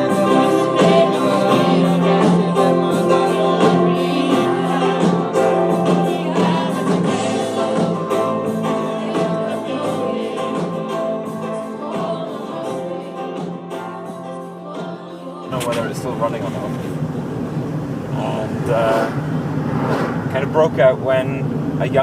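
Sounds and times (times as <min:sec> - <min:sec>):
group singing worship song: 0:00.0 - 0:15.9
instrumental backing: 0:00.0 - 0:17.0.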